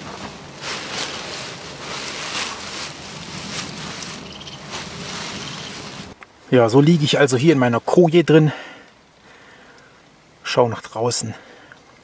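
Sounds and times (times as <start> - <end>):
dry leaves rustling and crackling: 0.0 - 6.2.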